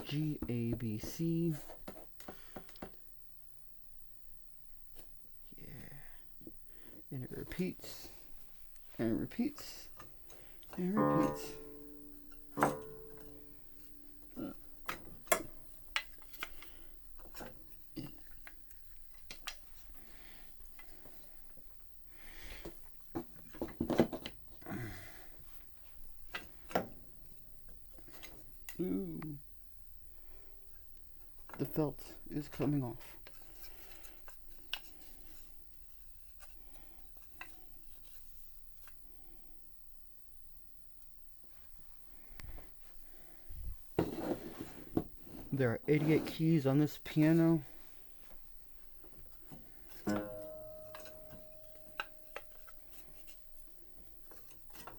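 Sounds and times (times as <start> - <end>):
piano keys clicking and knocking: 10.9 - 14.4, 50.0 - 53.7.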